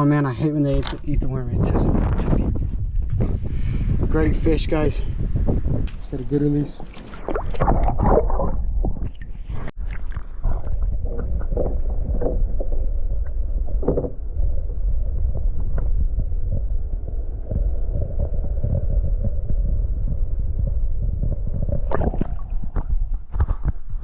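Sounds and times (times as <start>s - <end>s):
wind rumbling on microphone: 0.0s - 24.0s
water sounds: 5.8s - 23.7s.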